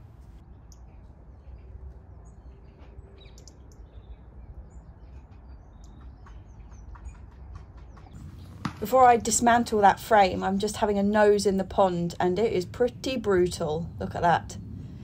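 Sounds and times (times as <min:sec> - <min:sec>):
small birds chirping: 0:00.4 - 0:08.8
steady low rumble: 0:08.2 - 0:15.0.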